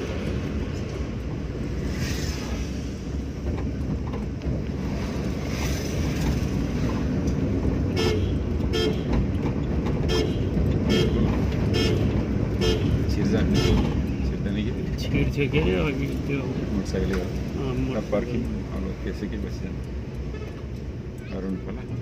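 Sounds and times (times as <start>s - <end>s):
car engine and road rumble: 0.0s - 22.0s
short car horn beeps: 8.0s - 9.1s, 10.1s - 12.9s.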